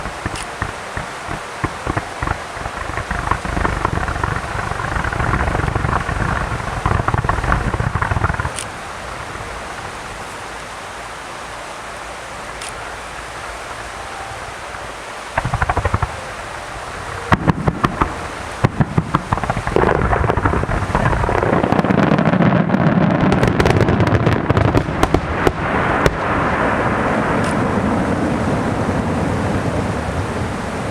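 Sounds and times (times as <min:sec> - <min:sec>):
fireworks bangs and crackling: 0:00.0 - 0:08.8, 0:14.7 - 0:29.4
steady rumble: 0:00.0 - 0:30.9.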